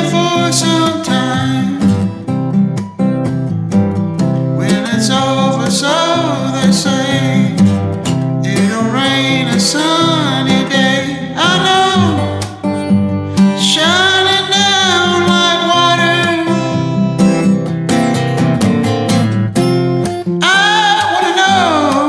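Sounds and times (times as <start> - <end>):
man singing: 0.0 - 2.0, 4.6 - 7.8, 8.4 - 12.7, 13.3 - 17.0, 20.4 - 22.0
acoustic guitar strumming: 0.0 - 22.0.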